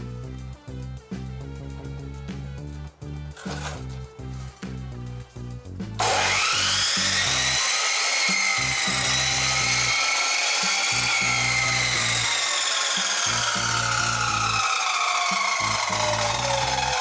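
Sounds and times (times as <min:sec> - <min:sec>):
cut-off saw cutting metal pipe: 0:03.4 - 0:03.8, 0:06.0 - 0:17.0.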